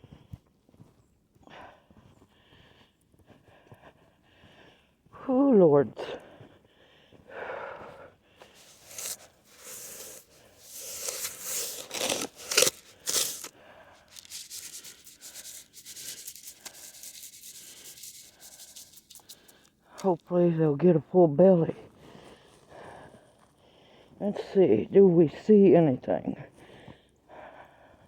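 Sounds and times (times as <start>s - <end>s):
footsteps crunching through snow: 8.4s - 19.6s.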